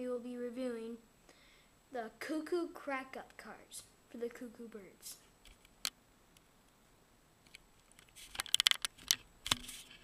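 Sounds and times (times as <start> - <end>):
crinkly package rustles: 7.8 - 10.0.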